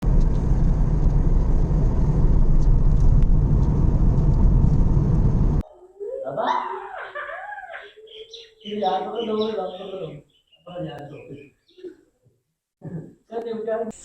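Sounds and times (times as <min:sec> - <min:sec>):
loud steady rumbling: 0:00.0 - 0:05.6.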